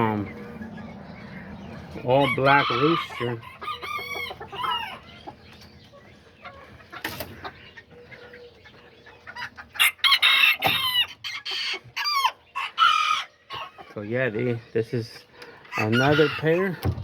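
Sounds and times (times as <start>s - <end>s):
roosters crowing: 0.0s - 5.5s, 9.4s - 13.8s, 15.5s - 17.0s
hens clucking: 0.0s - 17.0s.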